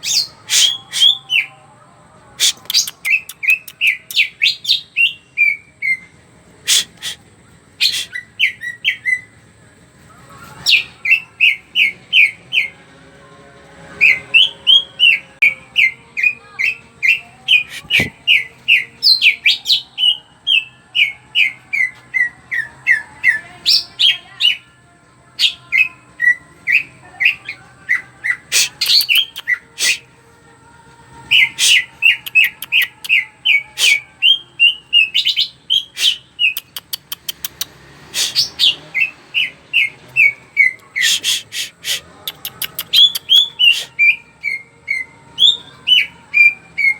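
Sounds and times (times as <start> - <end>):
bird singing rapid notes: 2.4 - 5.6, 14.0 - 24.2, 25.4 - 30.0, 31.4 - 46.9
bird clicking notes: 36.5 - 37.7, 41.2 - 43.8.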